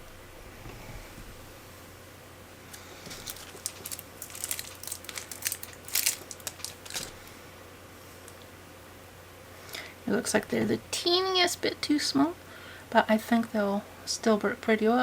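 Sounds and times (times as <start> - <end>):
small crinkles and clicks: 2.7 - 7.2.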